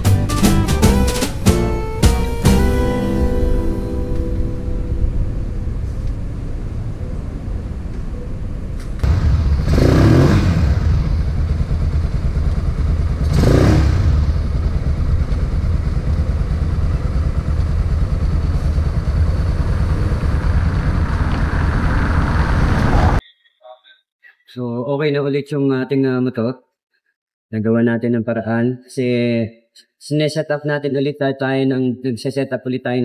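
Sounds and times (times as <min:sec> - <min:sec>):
motorcycle engine revving: 0:09.0 - 0:23.2
motorcycle engine idling: 0:10.7 - 0:22.0.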